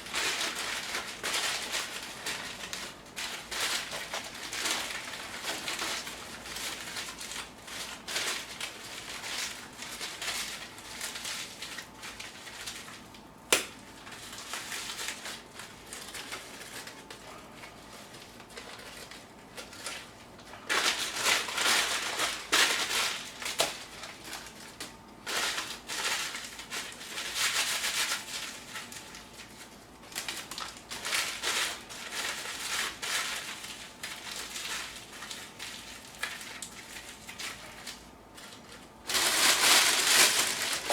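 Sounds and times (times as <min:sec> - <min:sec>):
newspaper crumpling: 0:00.0 - 0:40.9.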